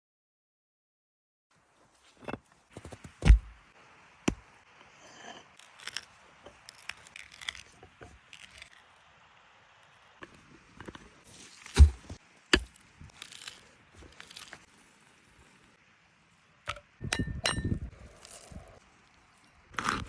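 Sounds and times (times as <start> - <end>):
sharp knocks and scraping: 1.8 - 3.6, 10.2 - 14.7.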